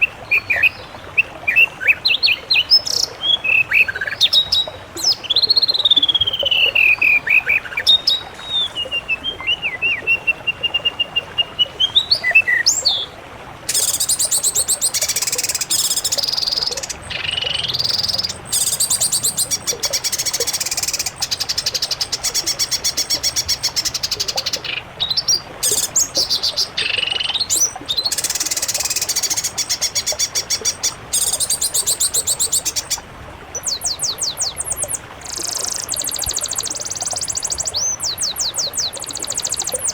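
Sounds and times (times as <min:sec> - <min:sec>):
songbird whistled notes: 0:13.7 - 0:24.6, 0:25.6 - 0:33.0, 0:33.6 - 0:39.9
songbird rapid trills: 0:13.7 - 0:39.9.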